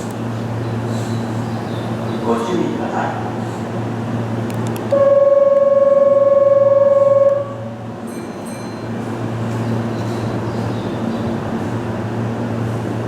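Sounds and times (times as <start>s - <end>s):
low hum of train: 0.0s - 13.0s
train horn blast: 4.9s - 7.8s.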